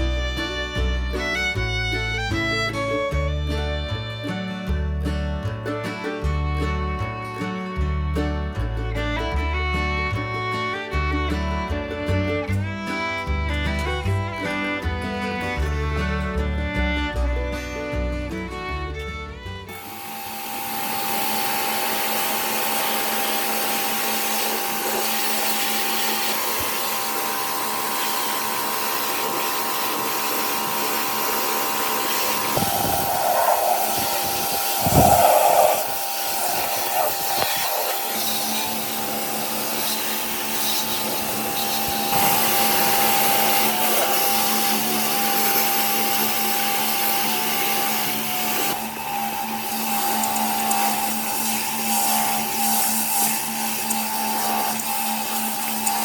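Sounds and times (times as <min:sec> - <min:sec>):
electric fan motor whining: 0:00.0 - 0:04.5, 0:18.4 - 0:56.0.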